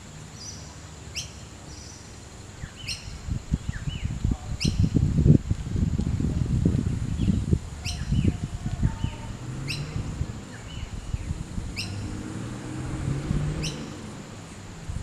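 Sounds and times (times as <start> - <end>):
bird chirps: 0.4 - 4.9, 7.2 - 12.2, 13.5 - 14.1.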